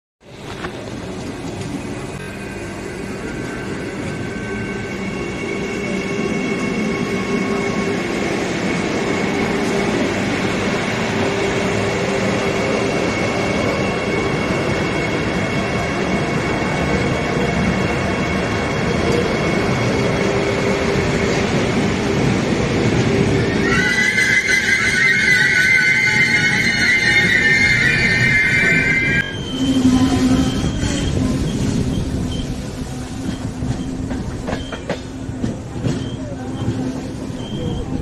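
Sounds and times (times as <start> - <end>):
train wheels rumbling on rails: 0.2 - 38.0
thin wheel squeal: 23.7 - 32.5.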